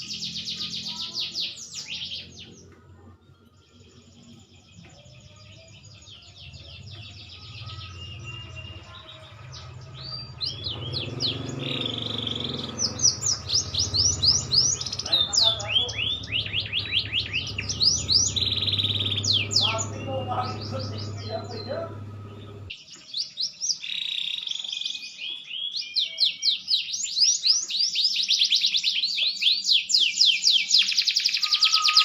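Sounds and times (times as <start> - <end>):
canary singing: 0.0 - 32.0
steady low hum: 12.4 - 22.7.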